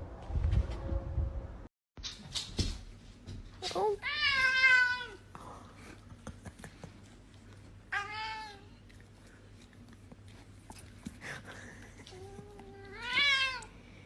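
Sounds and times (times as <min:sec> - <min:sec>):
cat meowing: 0:12.8 - 0:13.7.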